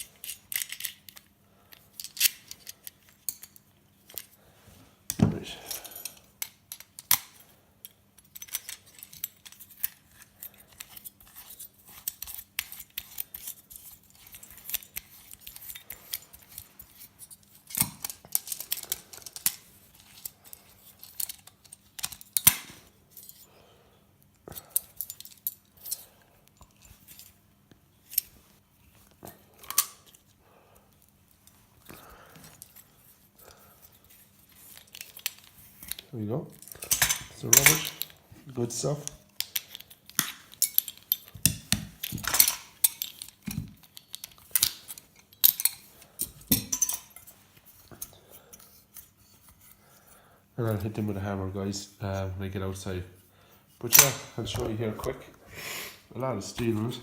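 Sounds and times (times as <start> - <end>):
tools clicking and snipping: 0.0 - 4.3, 5.1 - 23.5, 29.6 - 30.2, 34.5 - 38.2, 38.9 - 47.3
small metal parts clinking: 0.0 - 4.4, 5.1 - 23.5, 24.5 - 27.4, 33.8 - 49.8
faint steady hum: 0.0 - 57.0.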